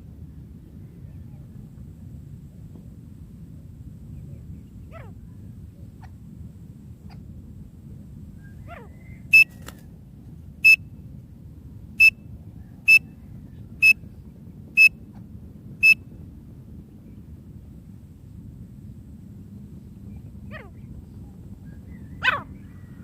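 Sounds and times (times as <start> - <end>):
low background noise: 0.0 - 23.0
francolin calling: 12.9 - 13.1.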